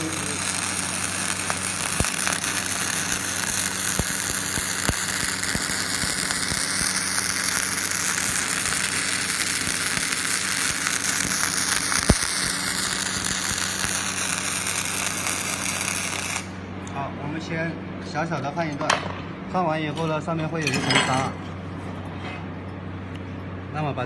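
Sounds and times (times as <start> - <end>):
welding arc crackling and hissing: 0.0 - 16.6
steady low hum: 0.0 - 24.0.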